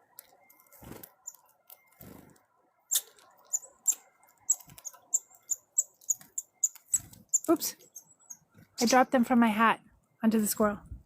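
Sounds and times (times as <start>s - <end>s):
squirrel nibbling seeds clicks: 2.9s - 8.0s.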